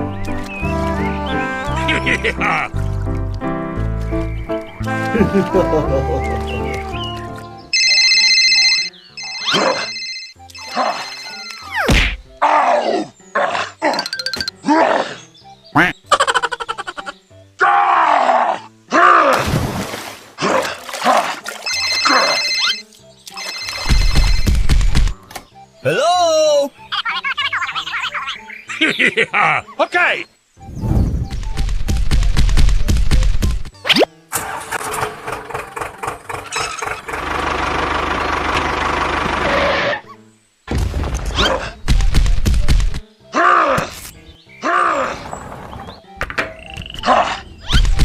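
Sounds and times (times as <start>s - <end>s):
light background music: 0.0s - 35.4s, 40.0s - 48.0s
engine starting and running: 34.3s - 39.9s.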